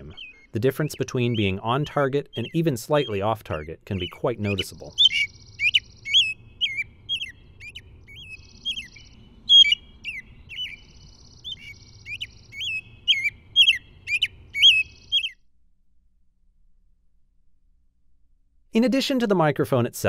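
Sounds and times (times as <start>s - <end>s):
buzzy bird trill: 0.0s - 15.4s.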